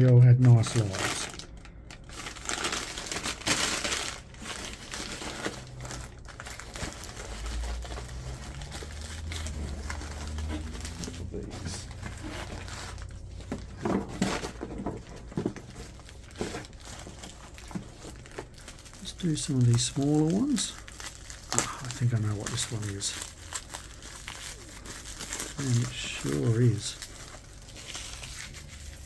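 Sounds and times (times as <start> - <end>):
paper crinkling and rustling: 0.0 - 29.0
low rumble: 0.7 - 13.8.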